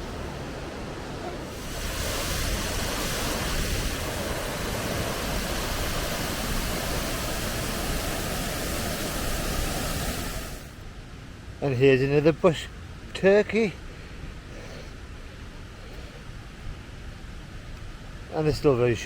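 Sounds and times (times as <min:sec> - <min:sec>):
waterfall pouring into a pool: 0:01.5 - 0:10.8.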